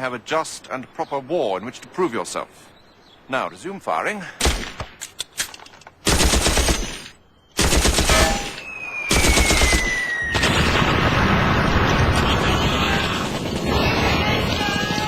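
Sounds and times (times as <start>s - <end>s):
machine gun firing bursts: 6.0s - 8.5s, 9.1s - 11.4s.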